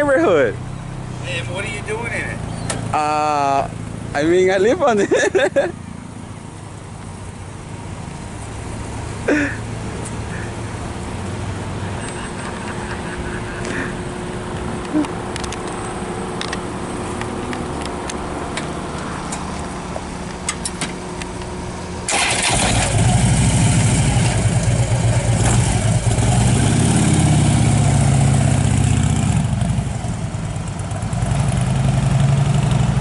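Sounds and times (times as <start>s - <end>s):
motorcycle engine revving: 22.1s - 33.0s.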